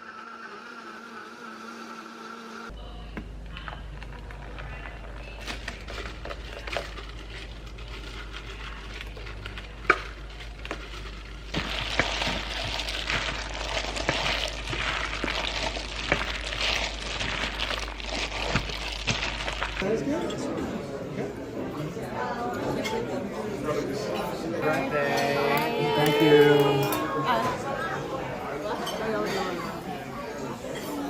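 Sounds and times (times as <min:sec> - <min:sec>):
hot food sizzling: 0:09.4 - 0:19.9.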